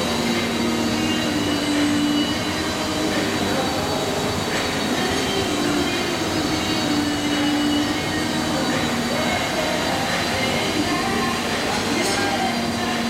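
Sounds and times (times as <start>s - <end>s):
baler machine running: 0.0s - 13.0s
faint machine whine: 0.0s - 13.0s
machine hum: 0.0s - 13.0s.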